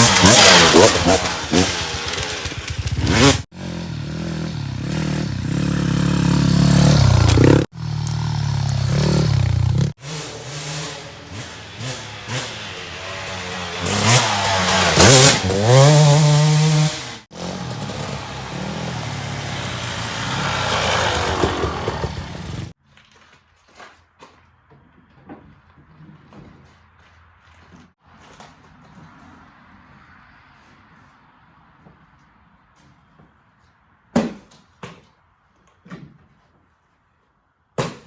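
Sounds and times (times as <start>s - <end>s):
dirt bike engines revving: 0.0s - 22.8s.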